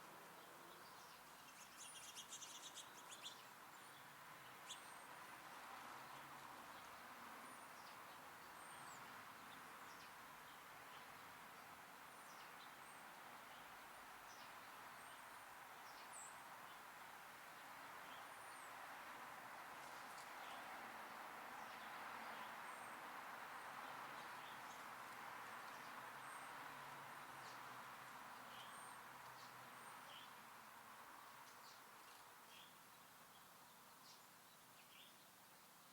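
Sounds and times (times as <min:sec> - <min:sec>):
songbirds chirping: 0:00.0 - 0:35.9
steady background hiss: 0:00.0 - 0:35.9.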